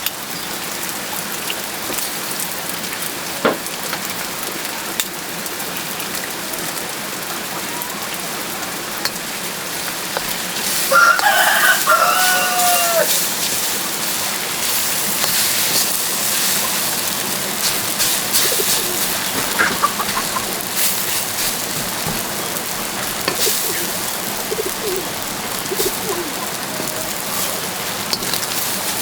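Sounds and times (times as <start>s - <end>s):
hiss and patter of rain: 0.0s - 29.0s
poultry soft low calls: 18.3s - 20.8s, 22.4s - 27.8s.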